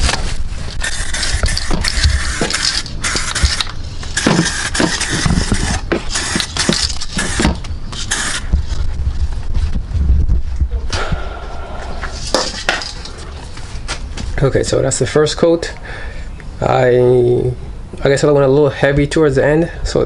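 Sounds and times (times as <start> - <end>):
spray paint can hissing: 0.7 - 8.8.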